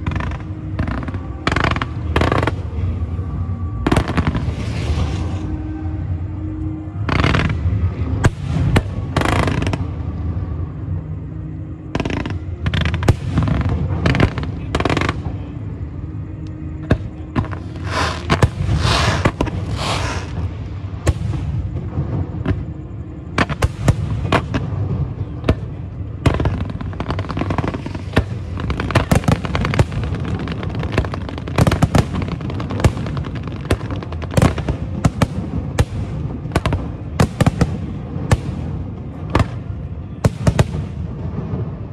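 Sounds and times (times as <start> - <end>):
fireworks crackling and hissing: 0.0 - 10.8, 11.8 - 16.1, 16.7 - 41.9
firework shells bursting: 17.8 - 20.4.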